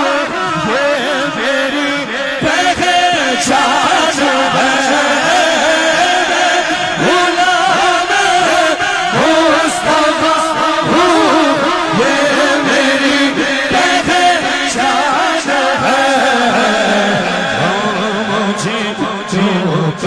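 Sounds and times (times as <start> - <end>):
person singing devotional song: 0.0 - 20.0.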